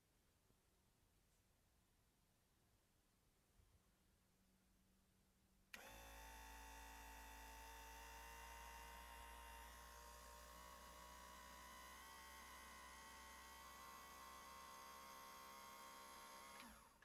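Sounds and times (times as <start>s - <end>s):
electric pump motor humming: 5.8s - 17.0s.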